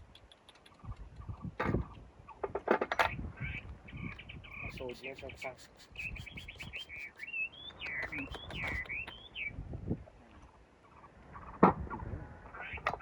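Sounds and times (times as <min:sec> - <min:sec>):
birds warbling whistles: 0:03.1 - 0:09.6.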